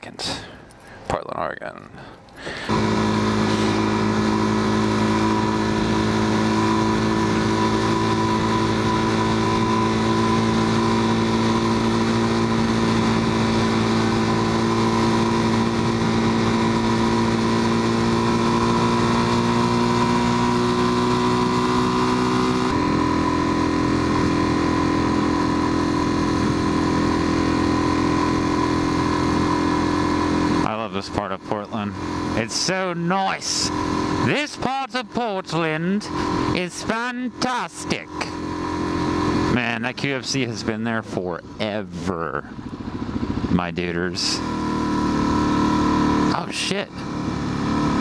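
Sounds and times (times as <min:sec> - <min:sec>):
motorcycle engine running: 0:02.3 - 0:48.0.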